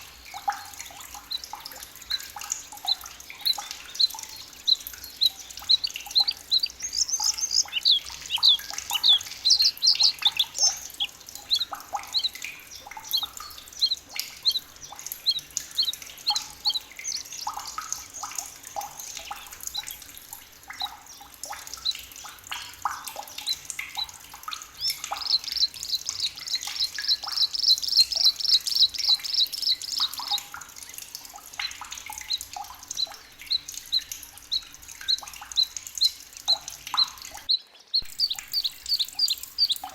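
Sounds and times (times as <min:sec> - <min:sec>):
fast bird trill: 0:02.8 - 0:14.6, 0:24.8 - 0:30.4
high bird chirps: 0:02.8 - 0:18.4, 0:24.7 - 0:30.4, 0:32.2 - 0:39.9.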